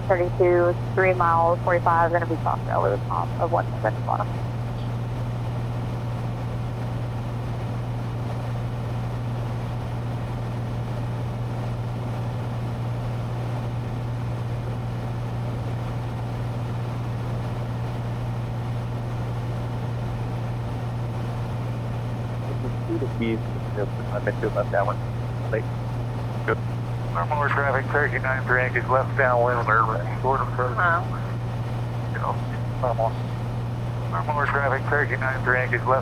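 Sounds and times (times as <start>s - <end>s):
airplane engine drone in cabin: 0.0s - 36.0s.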